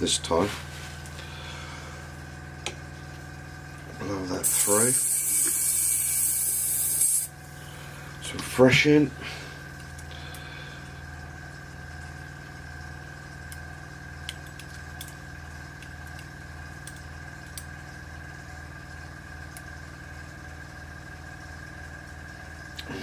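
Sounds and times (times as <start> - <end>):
compressor humming: 0.0 - 23.0
air blowing through airbrush: 4.4 - 7.3.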